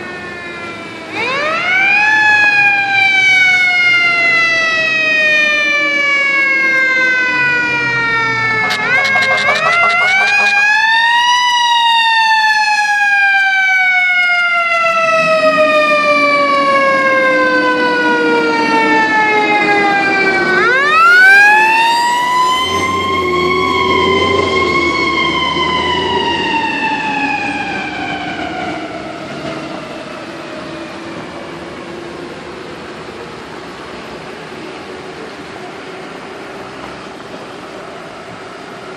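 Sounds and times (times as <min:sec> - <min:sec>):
emergency siren wailing: 0:00.0 - 0:33.1
steady low drone: 0:08.3 - 0:11.4.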